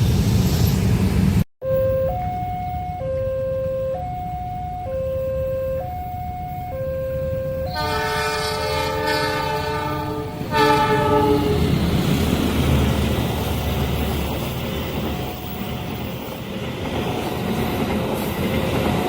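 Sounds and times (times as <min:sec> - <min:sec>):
train rumble: 0:00.0 - 0:01.4, 0:06.0 - 0:19.0
level crossing alarm two tones: 0:01.6 - 0:08.3
locomotive horn blast: 0:06.8 - 0:11.8.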